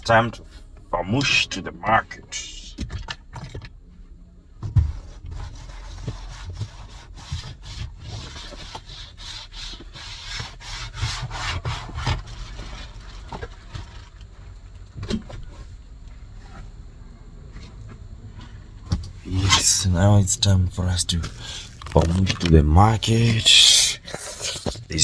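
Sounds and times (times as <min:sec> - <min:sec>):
rubbing and scraping: 0:04.9 - 0:13.2, 0:19.3 - 0:25.0.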